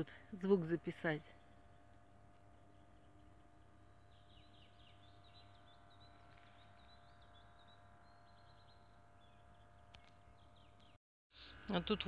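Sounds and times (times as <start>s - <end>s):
faint birdsong: 0.9s - 11.8s.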